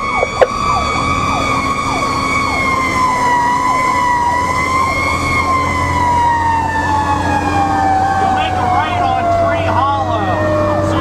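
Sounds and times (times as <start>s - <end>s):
siren quick downward sweeps: 0.0s - 2.7s
fire engine siren wailing: 0.0s - 11.0s
truck engine humming: 0.0s - 11.0s.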